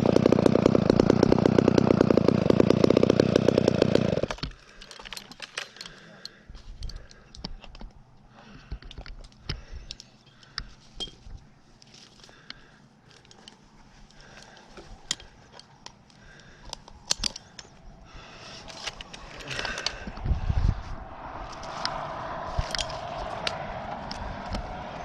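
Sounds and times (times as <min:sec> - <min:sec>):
metal climbing gear jingling: 0:03.6 - 0:07.9, 0:08.5 - 0:17.8
twigs crackling: 0:08.7 - 0:20.2, 0:21.1 - 0:25.0.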